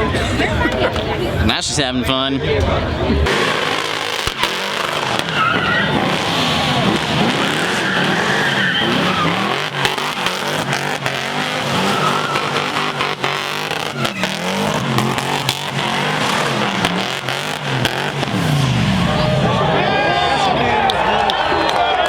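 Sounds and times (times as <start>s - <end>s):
tyres screeching: 2.9s - 21.2s
car engine revving hard: 3.2s - 20.7s
sharp exhaust pops: 3.3s - 18.7s.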